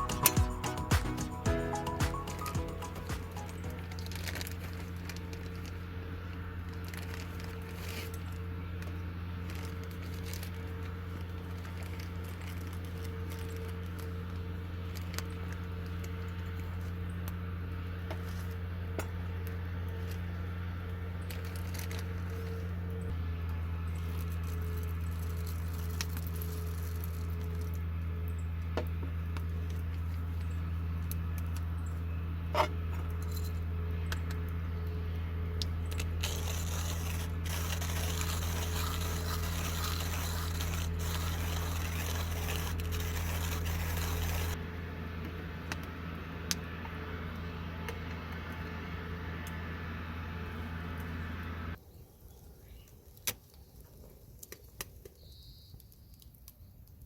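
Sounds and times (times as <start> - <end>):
low hum: 0.0 - 51.8.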